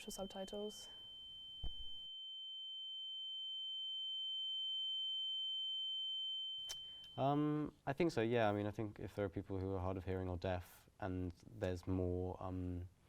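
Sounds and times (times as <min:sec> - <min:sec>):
high-pitched sine tone: 0:00.0 - 0:07.5.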